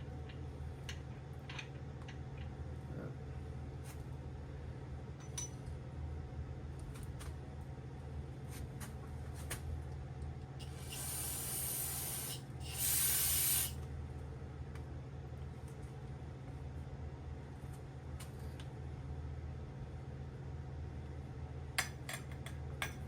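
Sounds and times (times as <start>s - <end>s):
aerosol can spraying: 10.6s - 13.8s.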